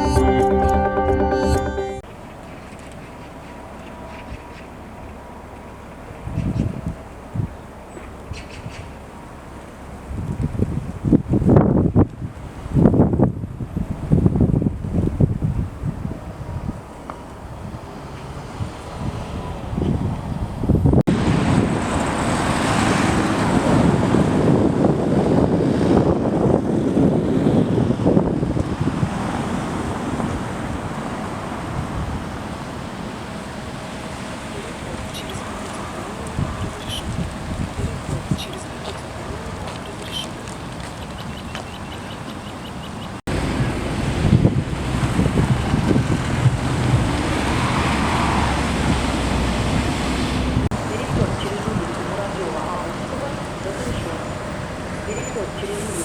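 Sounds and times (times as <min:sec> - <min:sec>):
traffic rumble: 0:02.0 - 0:56.0
wind buffeting microphone: 0:06.1 - 0:09.0, 0:10.0 - 0:56.0
vehicle passing by: 0:17.6 - 0:26.1, 0:43.2 - 0:56.0.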